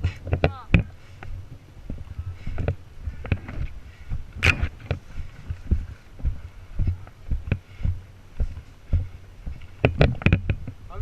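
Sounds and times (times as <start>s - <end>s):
footsteps: 0.0s - 10.8s
gear knocking against camera: 8.4s - 10.8s.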